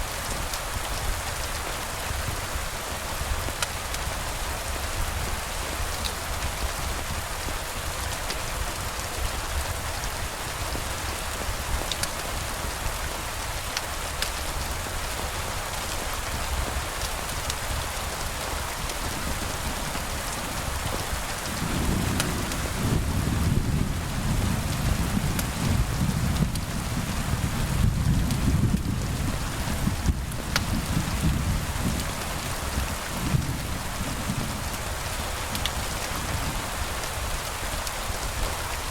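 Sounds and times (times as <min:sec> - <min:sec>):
steady rain: 0:00.0 - 0:38.9
sharp raindrop ticks: 0:11.4 - 0:12.2, 0:13.7 - 0:14.6, 0:17.0 - 0:23.5, 0:30.0 - 0:31.3, 0:35.5 - 0:36.4
low rumble of thunder: 0:18.4 - 0:37.2.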